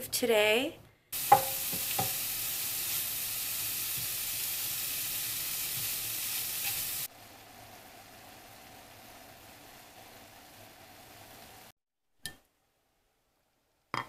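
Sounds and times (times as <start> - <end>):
meat sizzling in a pan: 1.1 - 11.8.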